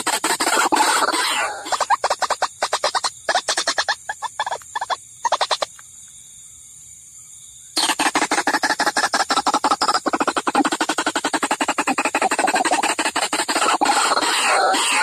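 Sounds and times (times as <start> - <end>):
waterhen calls: 0.0 - 5.7, 7.8 - 15.0.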